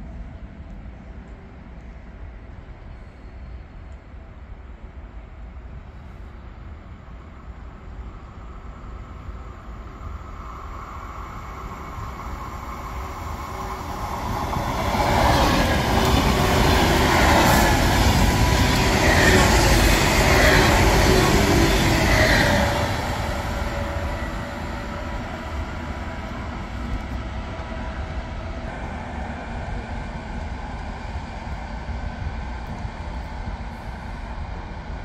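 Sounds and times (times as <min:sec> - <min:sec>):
high-speed train passing: 0:00.0 - 0:35.0.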